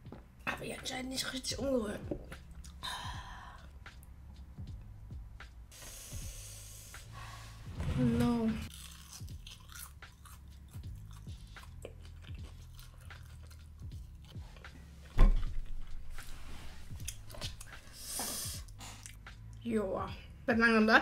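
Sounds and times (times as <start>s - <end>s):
chewing with wet mouth clicks: 8.7s - 14.8s, 18.7s - 19.3s.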